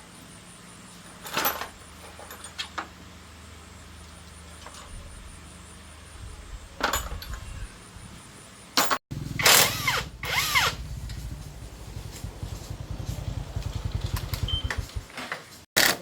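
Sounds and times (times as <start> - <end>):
small motor whirring: 9.4 - 15.0
low steady pulsing: 9.8 - 15.1.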